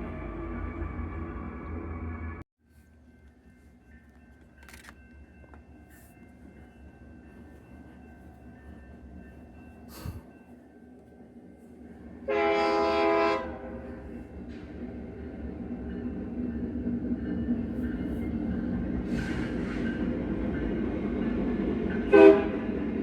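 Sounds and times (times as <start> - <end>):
train rumbling: 0.0 - 23.0
locomotive air horn blast: 12.3 - 13.8, 22.1 - 22.6.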